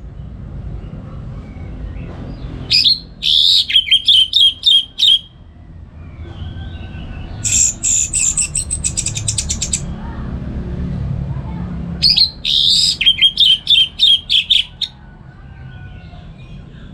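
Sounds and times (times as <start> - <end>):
thrush singing: 2.7 - 5.3, 12.0 - 14.9.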